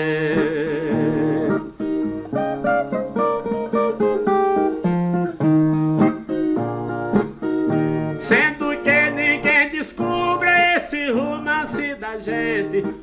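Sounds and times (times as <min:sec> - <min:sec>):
plucked guitar notes and strums: 0:00.0 - 0:13.0.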